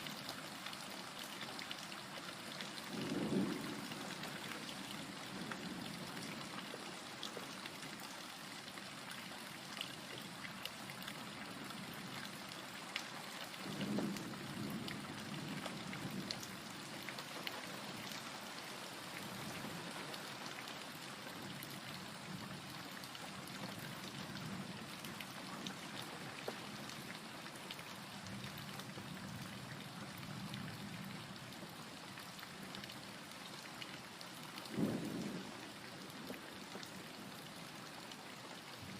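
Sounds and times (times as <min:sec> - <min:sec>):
rain falling on a surface: 0:00.0 - 0:38.9
low thunder rumbles: 0:02.9 - 0:04.4, 0:13.7 - 0:16.7, 0:34.7 - 0:36.4.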